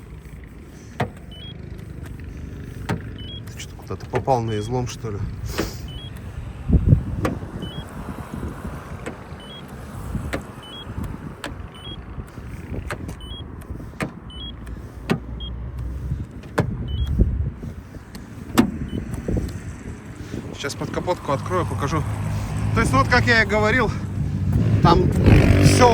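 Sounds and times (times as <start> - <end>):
short high beeps: 3.2 - 3.5, 5.8 - 6.2, 7.6 - 7.8, 10.6 - 10.9, 11.8 - 12.0, 13.2 - 13.4, 14.3 - 14.6, 16.9 - 17.1.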